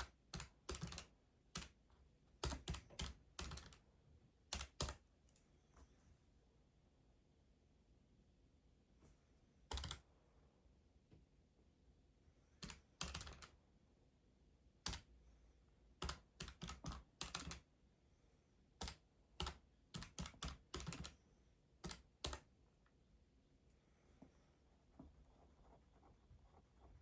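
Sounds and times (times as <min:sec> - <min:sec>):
keyboard typing clicks: 0:02.4 - 0:03.8, 0:04.5 - 0:05.0, 0:09.7 - 0:10.0, 0:12.6 - 0:13.6, 0:16.0 - 0:17.6, 0:18.8 - 0:21.2, 0:21.8 - 0:22.5.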